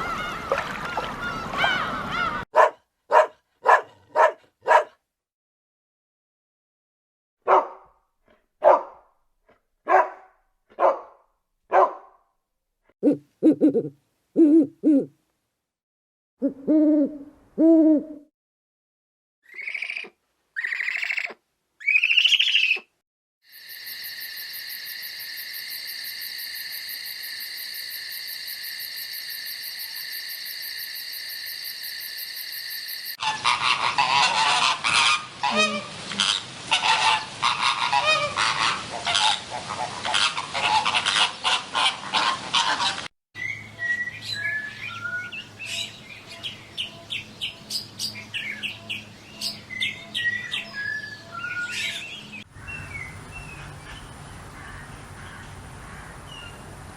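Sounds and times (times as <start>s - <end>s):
bird chirps: 19.5s - 22.9s, 43.4s - 54.2s.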